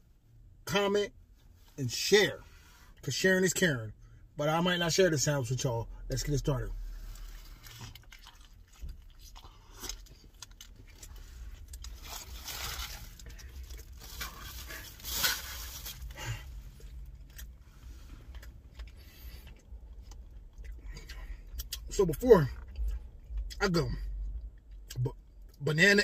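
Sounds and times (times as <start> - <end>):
man chewing and crunching: 6.9 - 25.6.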